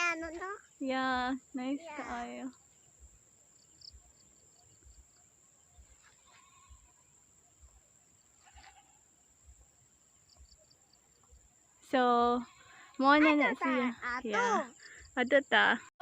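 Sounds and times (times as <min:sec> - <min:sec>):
distant animal calls: 0:08.4 - 0:09.1.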